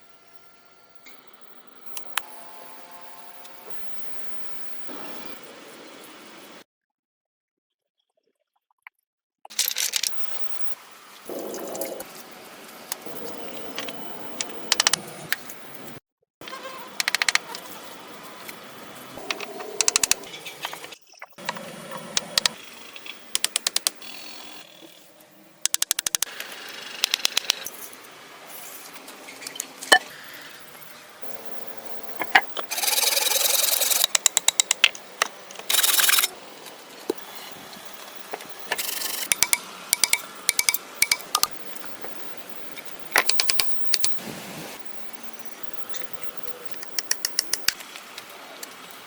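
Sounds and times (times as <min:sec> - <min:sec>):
hand tool rapid clicking: 0:14.4 - 0:15.0, 0:17.0 - 0:17.5, 0:19.2 - 0:20.3, 0:22.2 - 0:22.6, 0:23.3 - 0:24.4, 0:25.6 - 0:27.7, 0:32.6 - 0:36.3, 0:38.7 - 0:41.5, 0:43.2 - 0:44.2, 0:46.7 - 0:47.8.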